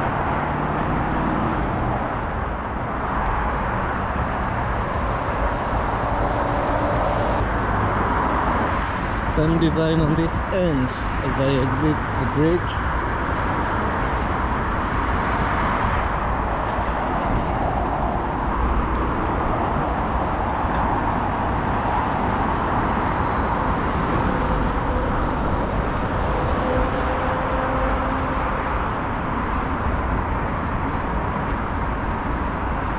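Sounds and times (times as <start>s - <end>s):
road traffic roar: 0.0s - 32.9s.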